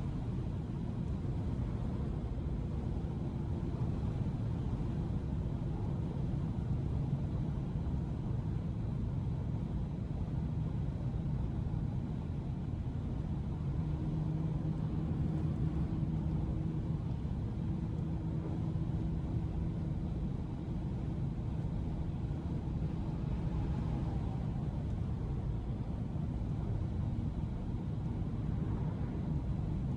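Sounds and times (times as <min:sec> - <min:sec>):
road and tyre rumble: 0:00.0 - 0:29.9
steady engine hum: 0:00.0 - 0:29.9.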